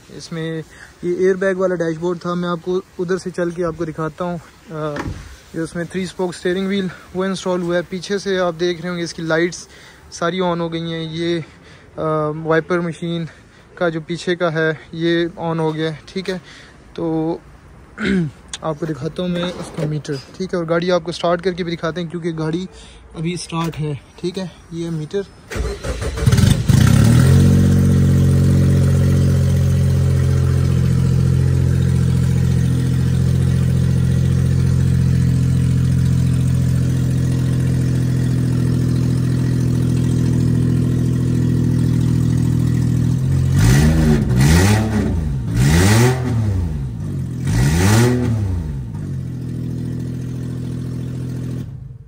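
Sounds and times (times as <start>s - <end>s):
car engine idling and revving: 25.5s - 52.0s.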